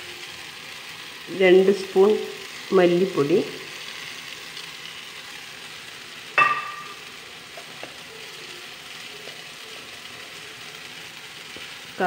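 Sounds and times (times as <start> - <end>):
masala sizzling in a frying pan: 0.0 - 12.0
ringing metal clink: 6.4 - 7.0.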